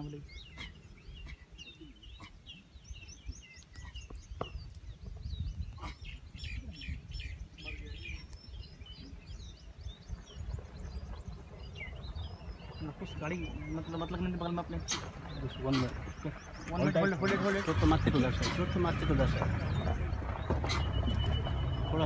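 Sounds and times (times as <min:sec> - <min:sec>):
birds chirping: 0:00.0 - 0:22.0
low steady rumble: 0:06.3 - 0:22.0.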